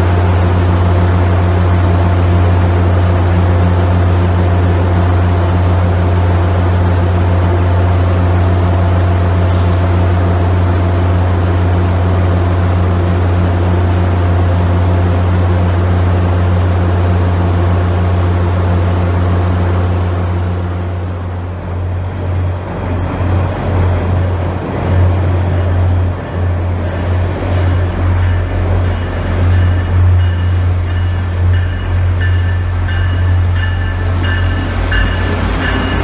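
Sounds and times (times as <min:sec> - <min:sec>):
approaching train rumble: 0:00.0 - 0:36.0
train low hum: 0:00.0 - 0:36.0.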